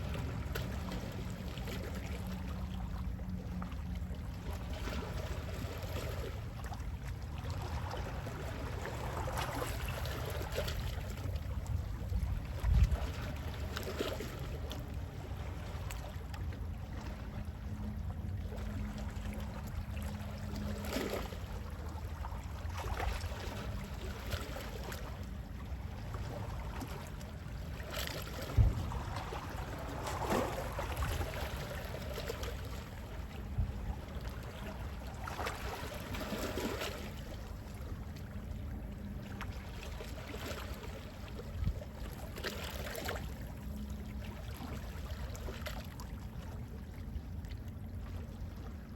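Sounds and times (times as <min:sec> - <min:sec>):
sea waves lapping: 0:00.0 - 0:48.9
steady low rumble: 0:25.0 - 0:35.9.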